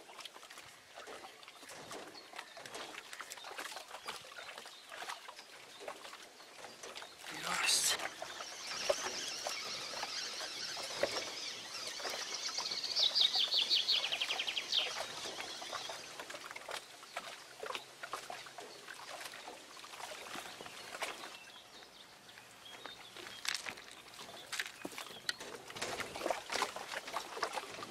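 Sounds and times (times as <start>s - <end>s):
songbird trilling: 7.4s - 16.1s.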